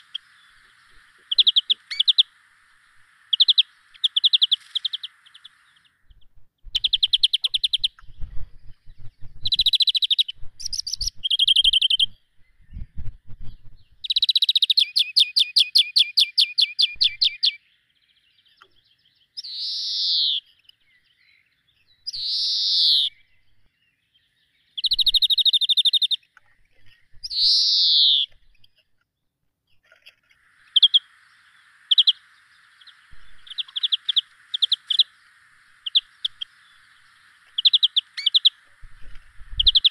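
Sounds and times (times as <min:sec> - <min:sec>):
buzzy bird trills: 0:00.0 - 0:17.6, 0:24.8 - 0:28.8, 0:30.4 - 0:39.9
downward-sweeping whistled bird calls: 0:00.0 - 0:28.8, 0:30.4 - 0:39.9.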